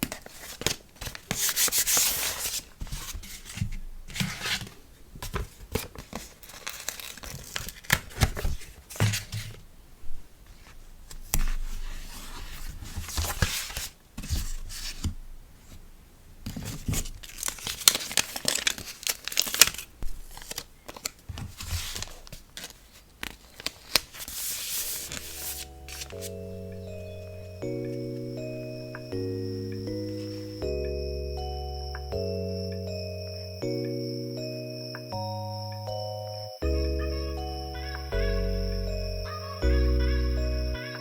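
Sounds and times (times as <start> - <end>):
packaging tearing and crinkling: 5.8 - 8.7, 17.0 - 26.3
soft music: 24.7 - 41.0.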